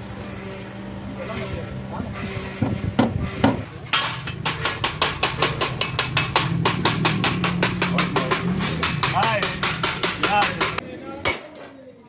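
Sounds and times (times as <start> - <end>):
hammer striking metal: 3.4 - 11.7.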